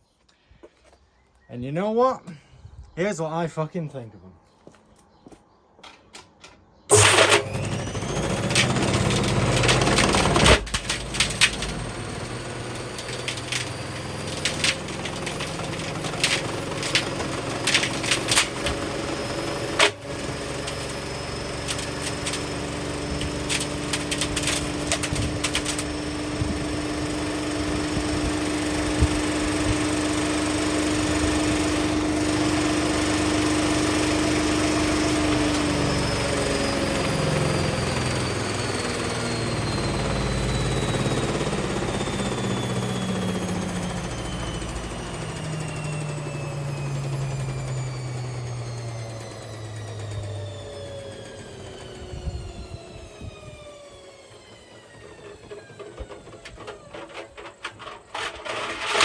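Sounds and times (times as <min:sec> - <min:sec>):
washing machine drum spinning: 0:06.9 - 0:51.7.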